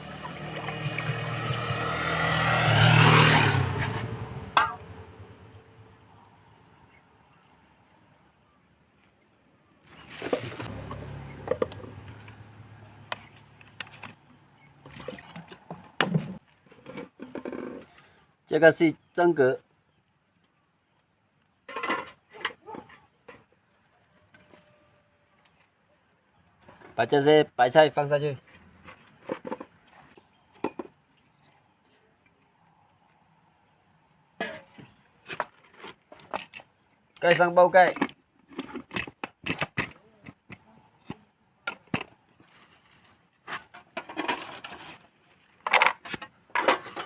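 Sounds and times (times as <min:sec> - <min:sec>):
water sloshing in a pot: 0:00.0 - 0:01.9.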